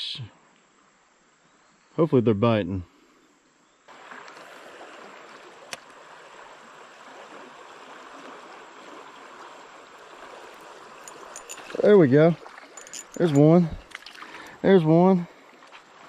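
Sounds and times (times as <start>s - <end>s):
creek water running: 3.9s - 16.0s.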